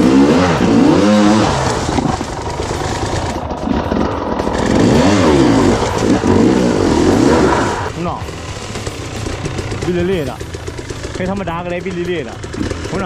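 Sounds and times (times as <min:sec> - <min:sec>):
dirt bike engine revving: 0:00.0 - 0:08.0.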